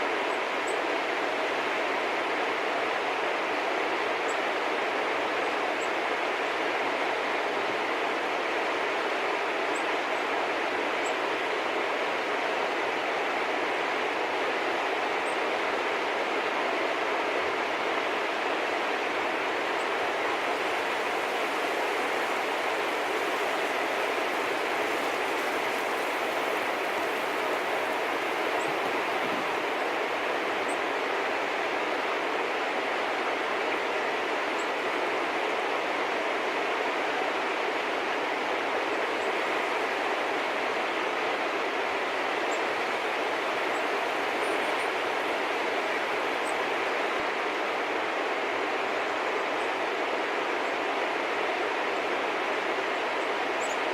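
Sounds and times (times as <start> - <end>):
steady rushing noise: 0.5 - 53.9.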